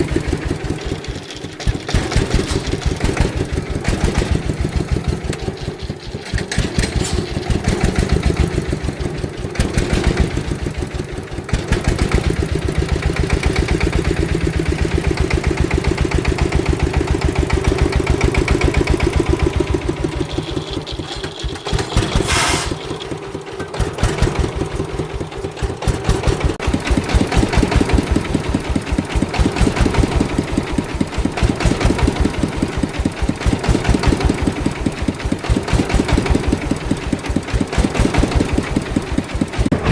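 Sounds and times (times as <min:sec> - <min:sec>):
vehicle engine under load: 0:00.0 - 0:39.9
short hiss: 0:22.2 - 0:22.9.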